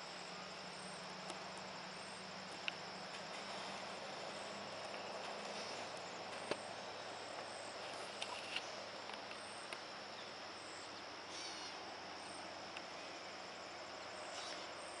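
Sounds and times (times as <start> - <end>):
insect chorus trilling: 0.0 - 15.0.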